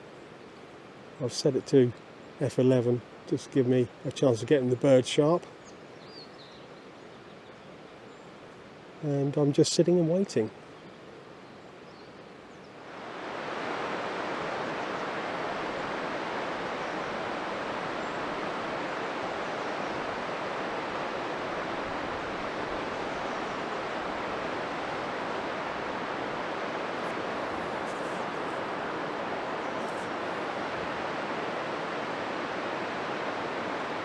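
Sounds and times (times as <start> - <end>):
running water rushing: 12.9 - 34.0.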